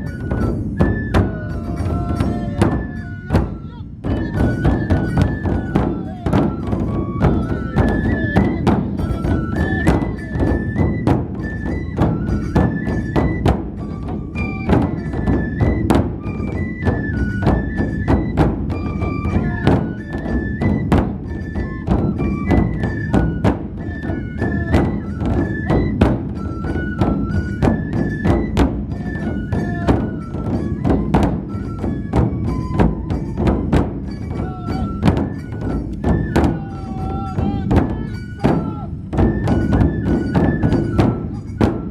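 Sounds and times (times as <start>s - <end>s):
high flute melody: 0.0s - 41.9s
large drums beaten: 0.0s - 41.9s.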